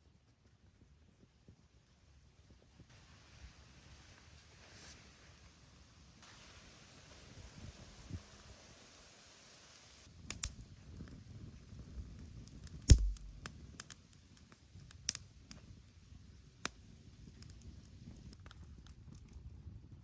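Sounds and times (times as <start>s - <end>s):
heavy thump: 12.9s - 13.4s
clicks of objects being handled: 12.9s - 13.5s.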